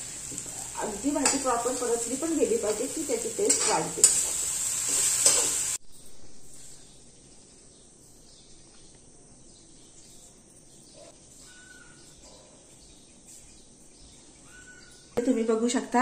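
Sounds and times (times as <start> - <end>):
food sizzling in a metal pot: 0.0 - 5.8
spatula stirring: 0.0 - 5.8
faint steady hiss: 0.0 - 10.6
faint bird chirps: 5.9 - 15.2.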